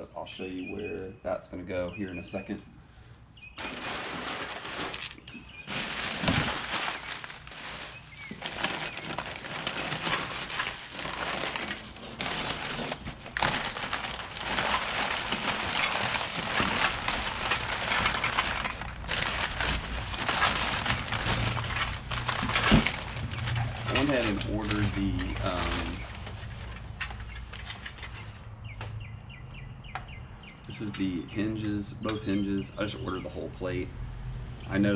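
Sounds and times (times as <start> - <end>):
packaging crinkling and rustling: 3.6 - 28.5.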